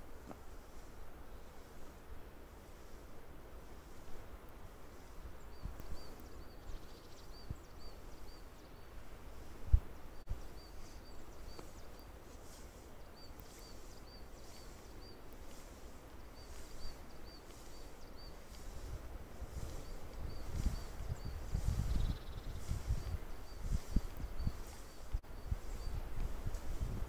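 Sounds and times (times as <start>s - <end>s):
small bird chirping: 4.9s - 9.5s, 10.1s - 27.0s.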